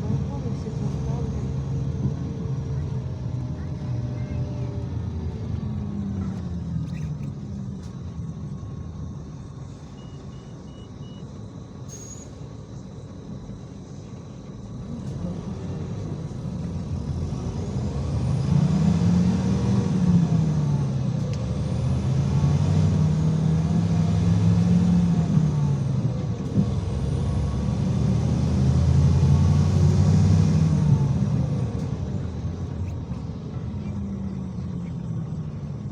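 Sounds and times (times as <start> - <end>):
bus engine: 0.0 - 35.9
short electronic beeps: 9.9 - 11.3.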